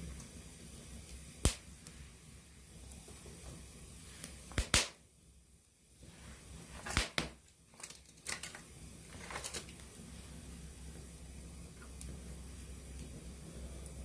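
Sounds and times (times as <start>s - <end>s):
campfire crackling and popping: 0.0s - 5.1s, 6.6s - 14.0s
faint low rumble: 9.8s - 14.0s.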